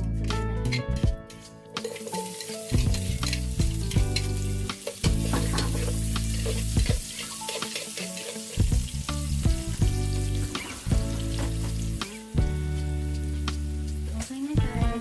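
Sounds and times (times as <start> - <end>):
onion sizzling in oil: 1.7 - 15.0
utensil scraping and clicking: 7.2 - 8.6.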